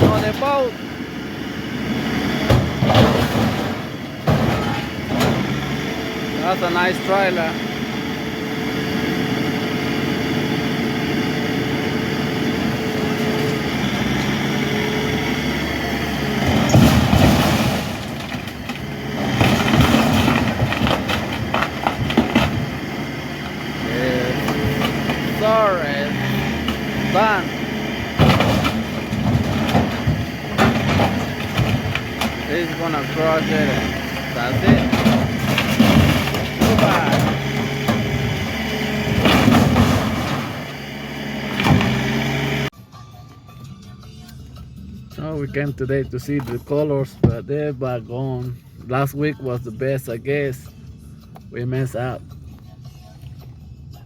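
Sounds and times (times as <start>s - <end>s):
metal crunching and banging: 0.0s - 9.6s, 10.5s - 42.7s
large engine running: 0.0s - 42.8s
metallic clanks and knocks: 2.3s - 5.8s, 16.2s - 40.8s.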